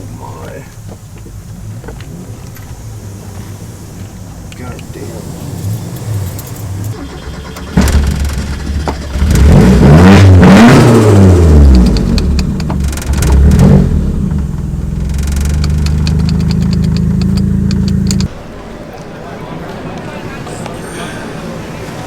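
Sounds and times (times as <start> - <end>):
car engine accelerating hard: 0.0 - 18.3.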